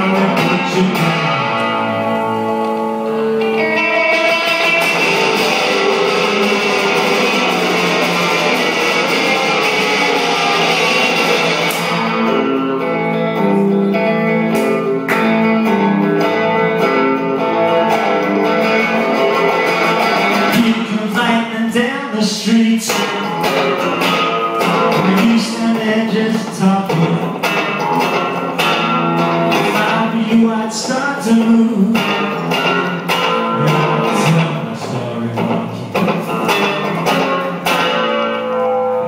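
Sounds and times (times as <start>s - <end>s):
live rock band playing: 0.0s - 39.0s
picked electric guitar notes: 0.0s - 39.0s.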